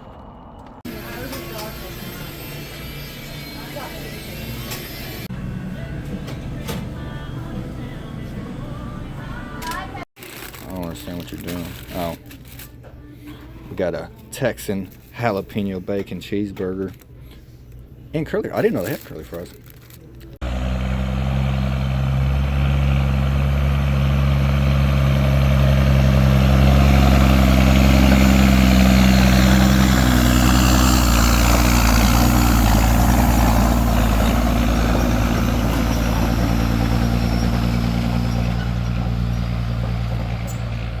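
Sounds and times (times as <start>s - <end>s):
road and wind noise: 0.0s - 0.8s, 20.4s - 41.0s
truck engine running: 5.2s - 10.0s, 20.4s - 41.0s.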